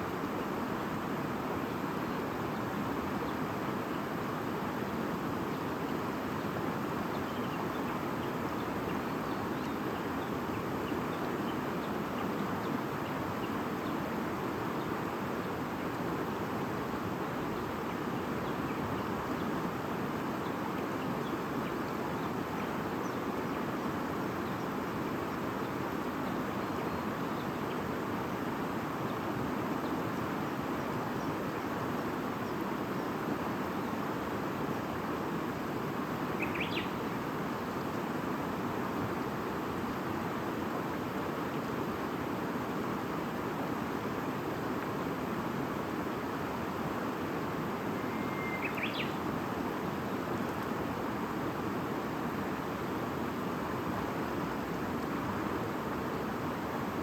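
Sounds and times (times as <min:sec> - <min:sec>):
faint bird chirps: 0:36.4 - 0:37.0, 0:47.8 - 0:49.3.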